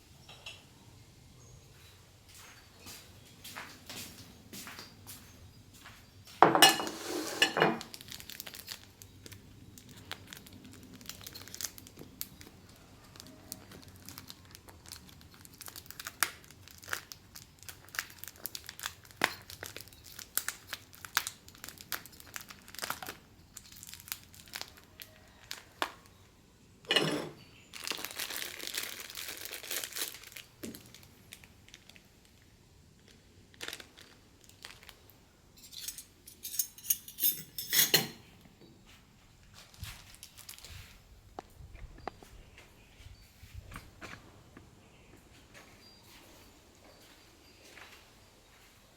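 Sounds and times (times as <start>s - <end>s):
crinkling and rustling: 2.3s - 26.3s, 26.9s - 48.0s.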